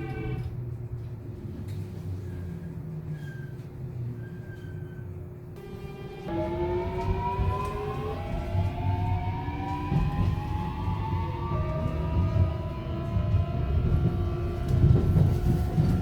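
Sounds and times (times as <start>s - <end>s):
train motors whining: 5.6s - 16.0s.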